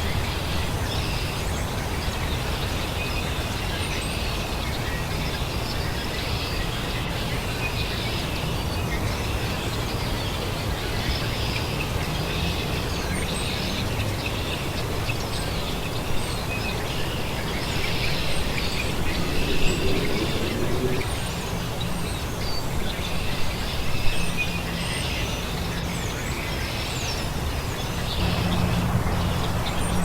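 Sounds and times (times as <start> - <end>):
birds chirping: 15.6 - 24.7.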